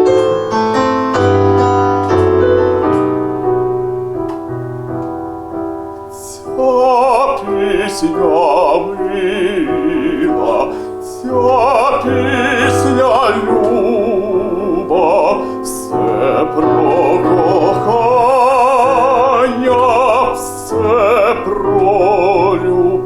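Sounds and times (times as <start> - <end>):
piano playing: 0.0 - 23.0
man singing with vibrato: 6.1 - 23.0.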